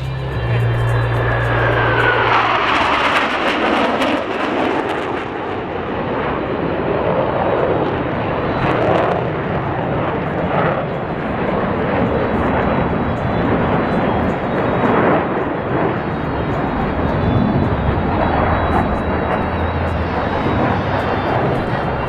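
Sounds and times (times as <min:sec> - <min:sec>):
jets flying by: 0:10.0 - 0:22.0.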